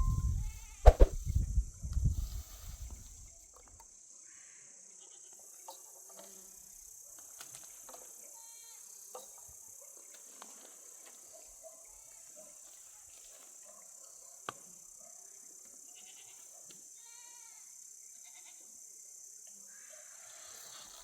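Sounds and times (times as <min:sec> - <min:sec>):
high insect-like hiss: 0:00.3 - 0:11.4, 0:14.6 - 0:21.0
sharp click: 0:00.9 - 0:01.2
faint livestock bleat: 0:04.3 - 0:05.4, 0:08.3 - 0:08.9, 0:15.8 - 0:18.8.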